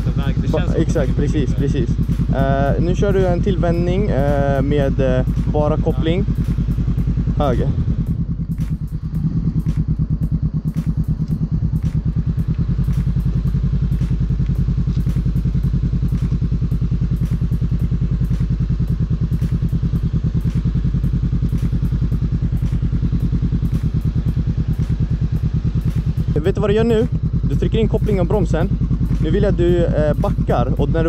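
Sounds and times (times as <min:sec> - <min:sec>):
motorcycle engine at low revs: 0:00.0 - 0:31.0.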